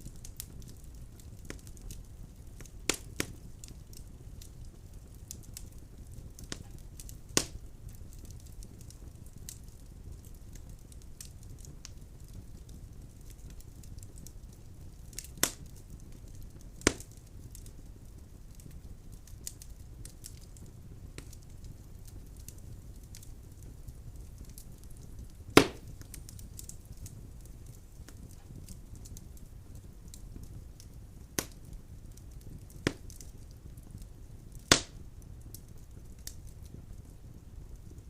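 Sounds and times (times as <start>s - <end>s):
burning logs popping: 0.0s - 38.0s
wood fire crackling: 0.0s - 38.0s.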